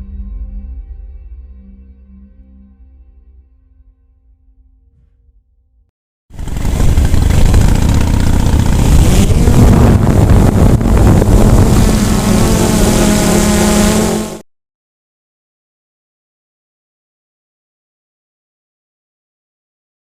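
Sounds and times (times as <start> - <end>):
motorcycle engine running: 6.3 - 14.4
wind rush on microphone: 6.4 - 14.4.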